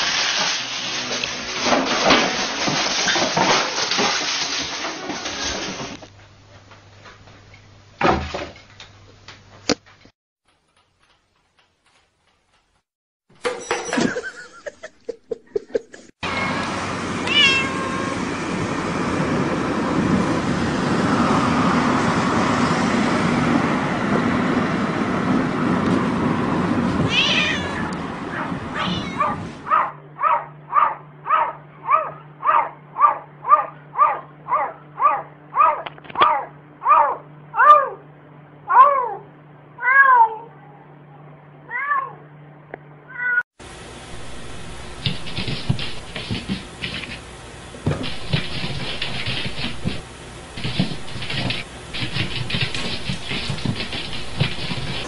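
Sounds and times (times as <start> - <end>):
cat meowing: 16.2 - 18.2, 27.1 - 29.4, 39.8 - 40.5.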